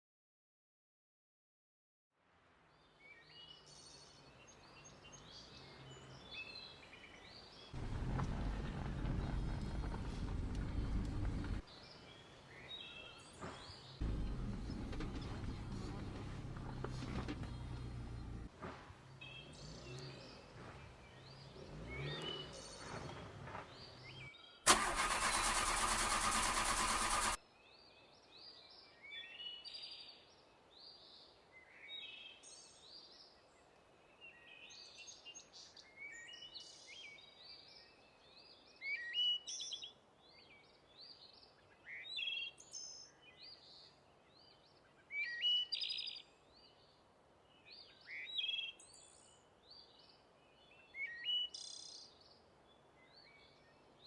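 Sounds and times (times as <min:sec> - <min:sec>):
small birds chirping: 0:03.1 - 0:18.5, 0:19.1 - 0:24.6, 0:26.9 - 0:54.0
low engine-like hum: 0:07.8 - 0:11.6, 0:14.0 - 0:18.5.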